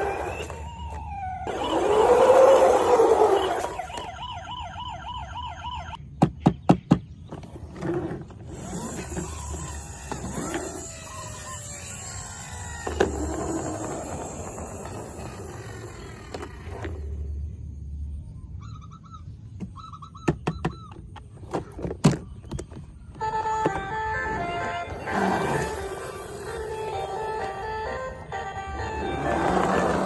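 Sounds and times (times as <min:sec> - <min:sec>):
siren wailing: 0:00.0 - 0:06.0, 0:09.3 - 0:14.7, 0:23.2 - 0:30.0.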